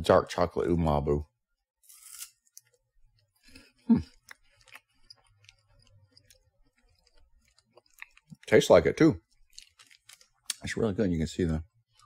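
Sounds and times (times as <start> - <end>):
person chewing crunchy snack: 3.4 - 8.5, 9.3 - 10.6.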